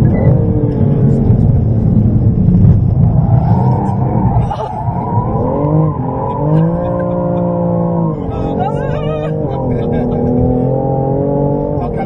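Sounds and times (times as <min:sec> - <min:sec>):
car engine revving from inside cabin: 0:05.4 - 0:12.0.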